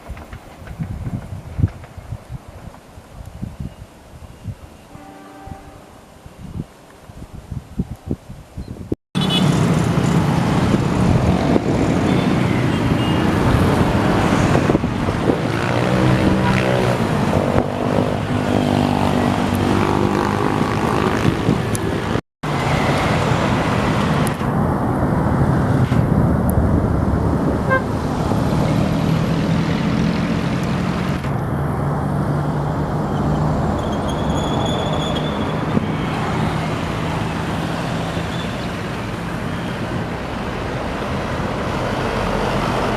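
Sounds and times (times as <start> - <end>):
train horn: 4.9 - 6.1, 27.6 - 28.0
train passing: 9.2 - 42.9.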